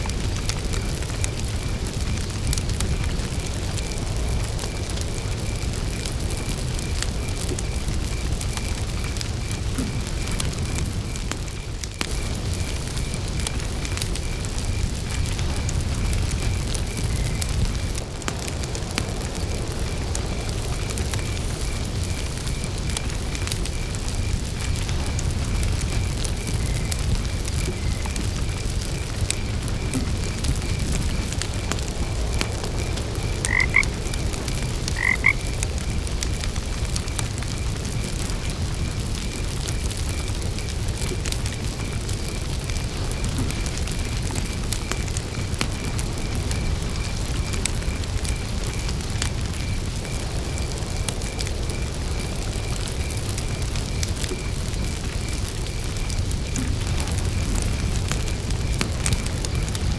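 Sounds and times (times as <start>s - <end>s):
campfire crackling: 0.0s - 59.9s
cricket chirping: 0.0s - 59.9s
frog croaking: 33.3s - 34.2s, 34.9s - 35.5s.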